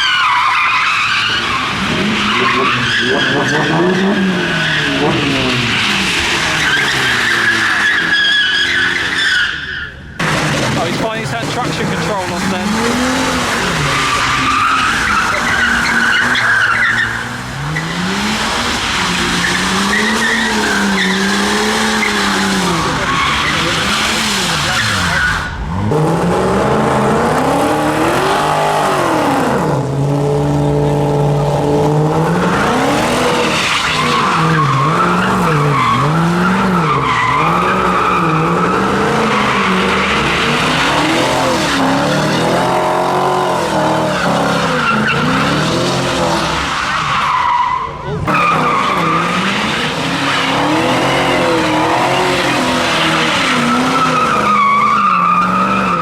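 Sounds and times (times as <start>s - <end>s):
tyres squealing: 0.0s - 25.7s, 32.4s - 56.0s
car engine revving: 10.2s - 56.0s.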